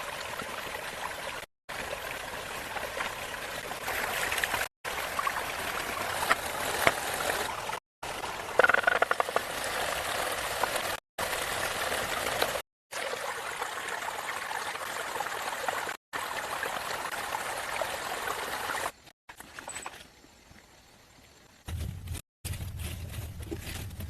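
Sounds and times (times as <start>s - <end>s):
running water: 0.0s - 19.1s.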